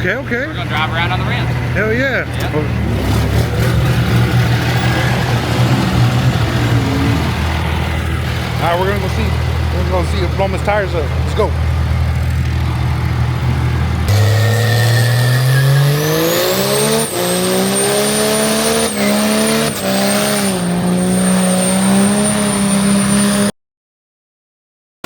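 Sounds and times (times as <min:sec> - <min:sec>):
engine revving hard: 0:00.7 - 0:11.8, 0:13.3 - 0:23.5
high whistle: 0:14.1 - 0:16.6.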